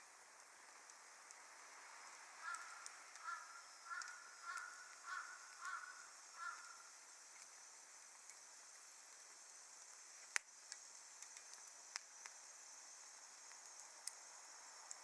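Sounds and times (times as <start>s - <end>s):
wood fire crackling: 0.0s - 15.0s
crow cawing: 2.4s - 6.9s.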